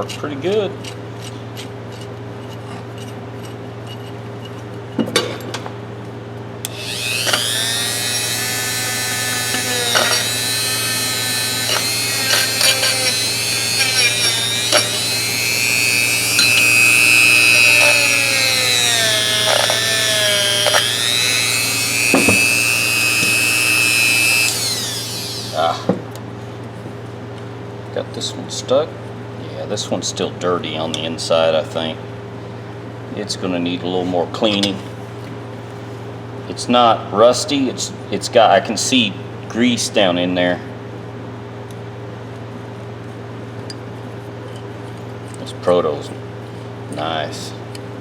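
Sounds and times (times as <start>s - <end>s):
handheld power tool running: 6.7s - 25.9s.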